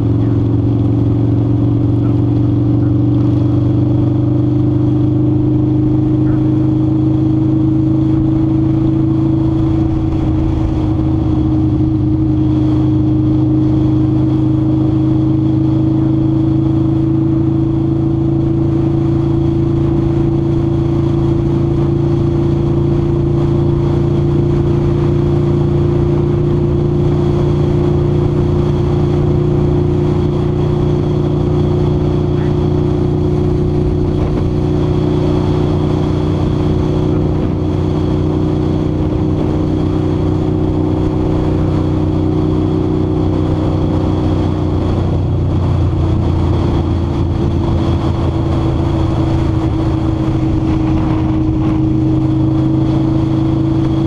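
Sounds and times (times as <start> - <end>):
motorcycle engine cruising: 0.0 - 54.0
wind on microphone: 21.9 - 54.0.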